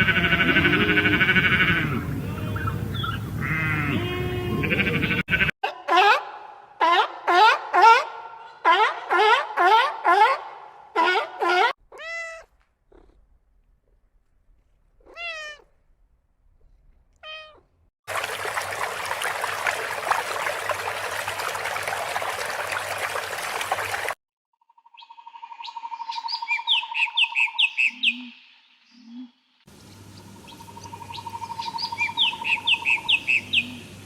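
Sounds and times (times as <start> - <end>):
wavering meow-like calls: 0.0 - 2.7
bird singing trills and chirps: 24.7 - 29.2, 29.8 - 33.7.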